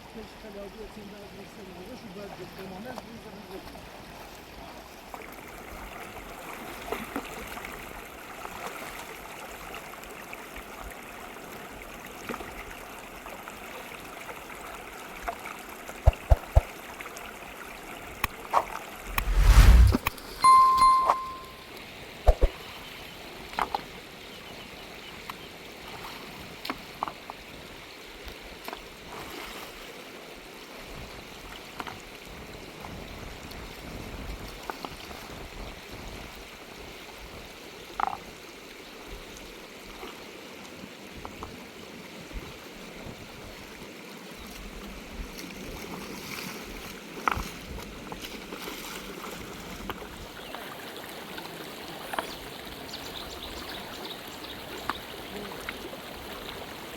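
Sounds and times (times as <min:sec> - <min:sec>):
sharp knocks or splashes: 0:16.0 - 0:16.7.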